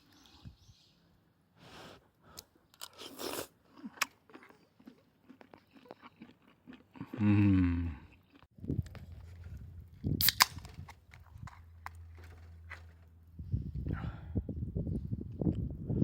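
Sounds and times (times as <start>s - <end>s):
chewing: 2.8s - 7.3s, 7.9s - 8.5s.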